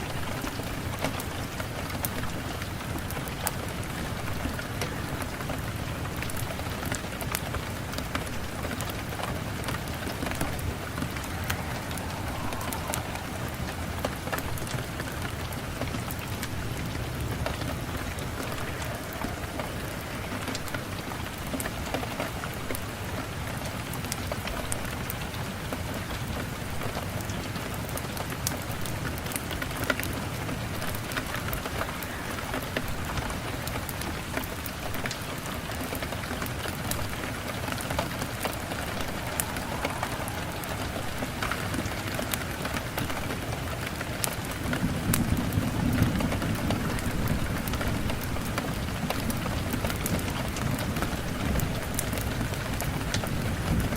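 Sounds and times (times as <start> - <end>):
steady rain falling: 0.0 - 53.9
wood fire crackling and popping: 6.1 - 21.7, 33.8 - 53.9.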